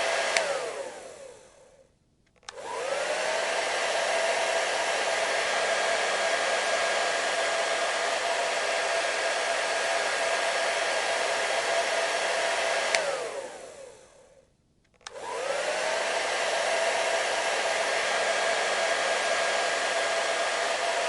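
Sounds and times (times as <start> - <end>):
hair dryer blowing: 0.0 - 14.4, 15.0 - 21.0
hair dryer switch click: 0.1 - 1.1, 2.3 - 3.4, 12.7 - 13.7, 14.9 - 15.8.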